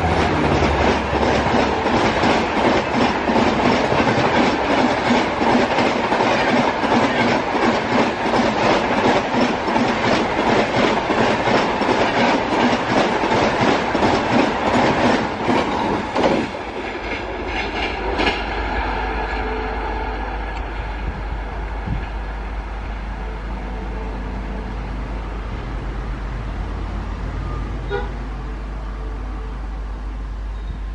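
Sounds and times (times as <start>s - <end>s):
train wheels clickety-clack: 0.0s - 19.6s, 20.4s - 22.3s
rumble of receding train: 0.0s - 30.9s.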